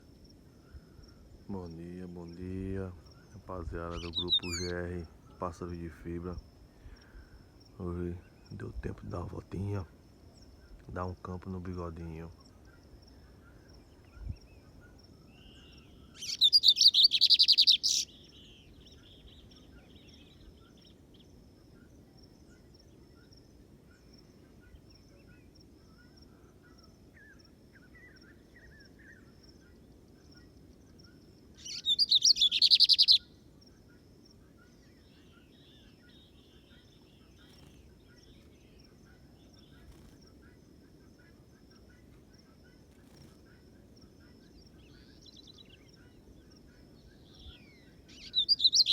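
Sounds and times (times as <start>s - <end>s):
bird singing buzzy high notes: 2.4s - 6.2s, 31.6s - 33.3s.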